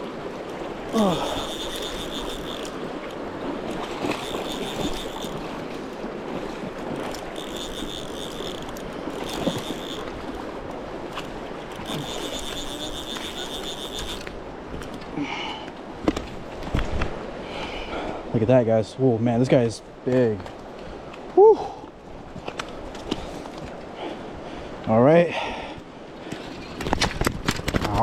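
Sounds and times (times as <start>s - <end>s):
river rushing: 0.0s - 17.9s
fishing reel whirring: 0.5s - 14.5s.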